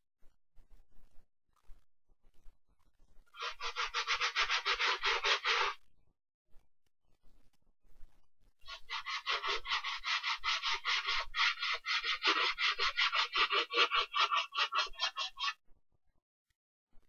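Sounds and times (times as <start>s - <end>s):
brush scrubbing a sneaker: 3.4s - 5.8s, 8.7s - 15.5s.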